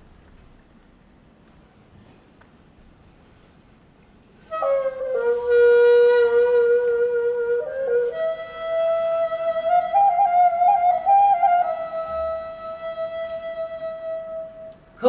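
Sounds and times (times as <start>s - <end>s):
wind instrument long notes: 4.4s - 15.0s.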